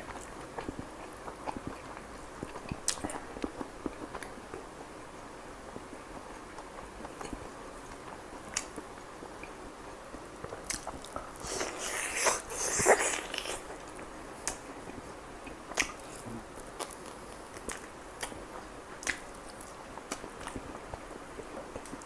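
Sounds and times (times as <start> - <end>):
biting and chewing food: 10.4 - 15.0.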